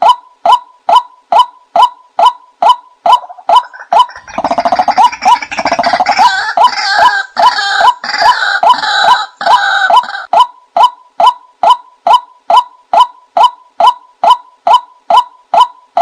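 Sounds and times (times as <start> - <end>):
harsh rattling bird chatter: 3.6 - 6.5.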